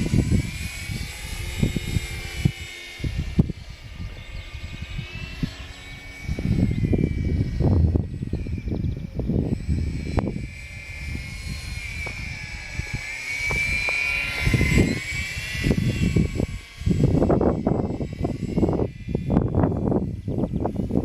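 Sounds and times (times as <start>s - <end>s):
model plane motor whining: 0.0s - 21.0s
wind buffeting microphone: 0.0s - 21.0s.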